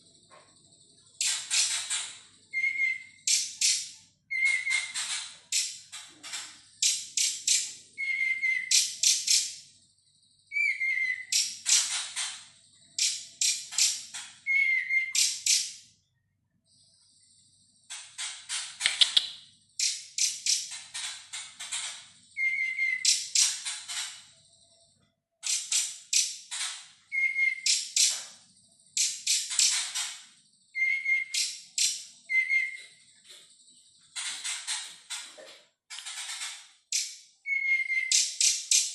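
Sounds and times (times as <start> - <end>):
songbird whistling and trilling: 1.2 - 5.8, 6.8 - 9.6, 10.5 - 12.0, 13.0 - 15.8, 22.3 - 23.7, 27.1 - 28.3, 30.7 - 33.0, 36.9 - 38.9.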